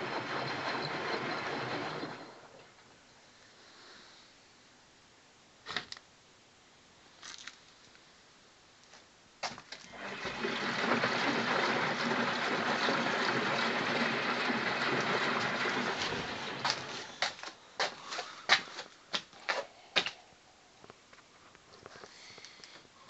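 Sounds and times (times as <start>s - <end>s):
water rushing into machine: 0.0s - 2.8s, 9.9s - 17.3s.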